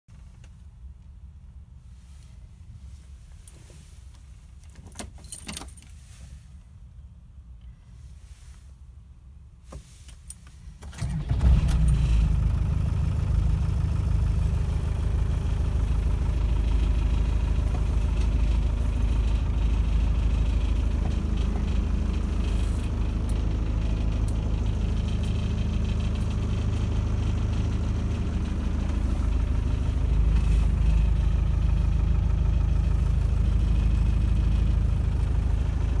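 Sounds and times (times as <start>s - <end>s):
engine idling: 10.9s - 36.0s.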